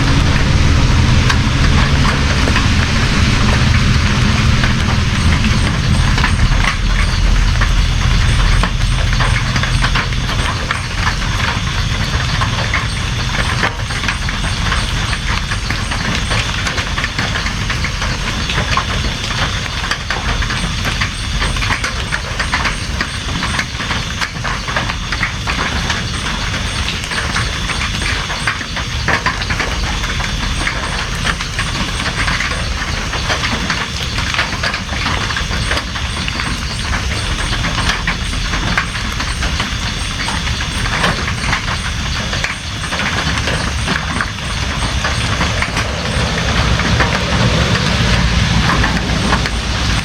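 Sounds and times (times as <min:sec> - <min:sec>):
low rumble: 0:00.0 - 0:20.0, 0:36.8 - 0:50.0
steady rain falling: 0:00.0 - 0:50.0.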